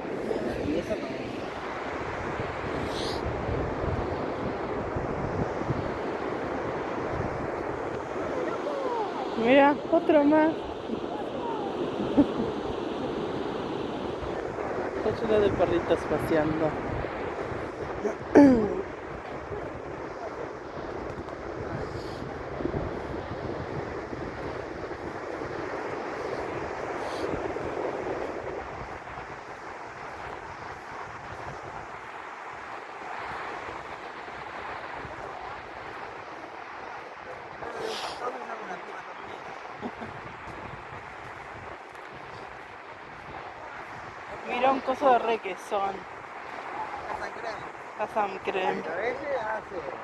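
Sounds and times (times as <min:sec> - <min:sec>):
surf: 0:00.0 - 0:50.0
wind buffeting microphone: 0:00.0 - 0:50.0.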